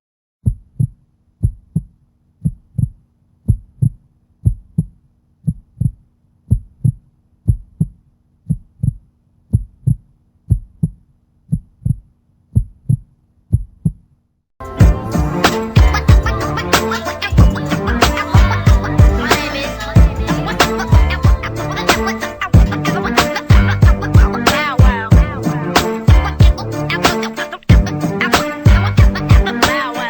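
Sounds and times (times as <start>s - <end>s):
heartbeat thumps: 0.4s - 14.1s, 17.3s - 25.5s, 26.1s - 26.6s, 27.7s - 28.0s.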